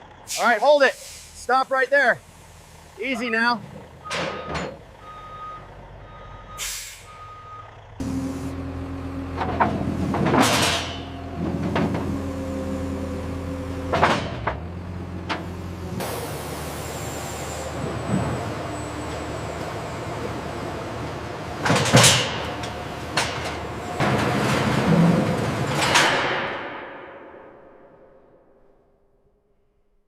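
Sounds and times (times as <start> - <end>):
truck engine running: 0.0 - 25.8
air-brake hisses: 0.3 - 1.5, 6.6 - 7.2
truck reversing alarm beeping: 2.3 - 10.0.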